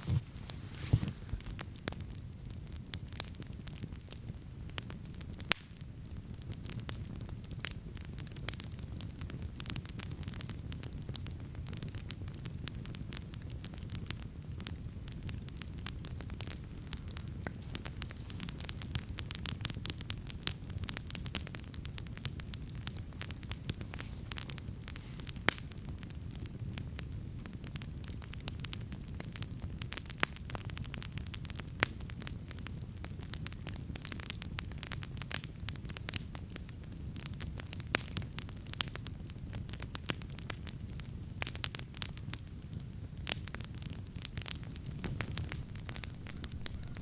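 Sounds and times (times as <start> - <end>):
campfire crackling and popping: 0.0 - 47.0.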